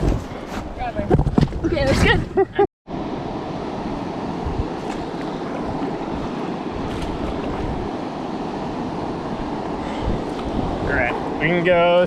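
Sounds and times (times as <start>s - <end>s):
river water rushing: 2.9s - 12.0s
wind on microphone: 3.4s - 11.9s.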